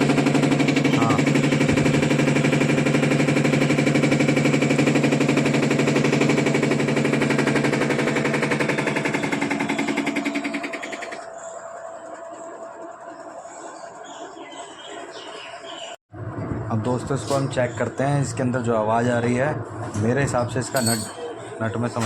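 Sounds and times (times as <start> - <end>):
washing machine spinning with rattle: 0.0 - 22.0.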